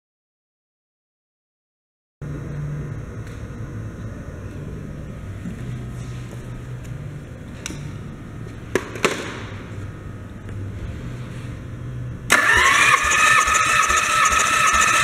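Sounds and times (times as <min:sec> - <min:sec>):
starter motor cranking engine: 0:12.3 - 0:15.0.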